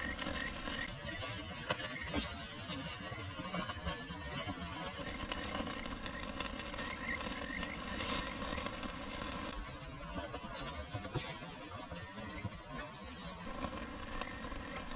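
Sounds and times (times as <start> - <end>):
crackling clicks: 0.0 - 14.9.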